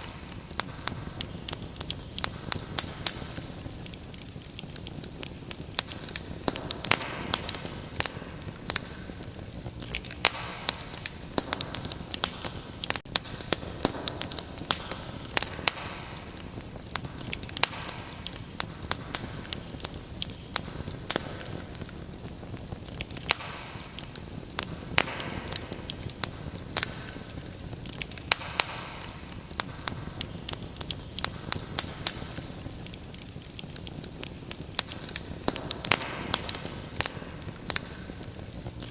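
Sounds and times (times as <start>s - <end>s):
fire crackling and popping: 0.0s - 38.9s
soft fire hiss: 0.0s - 38.9s.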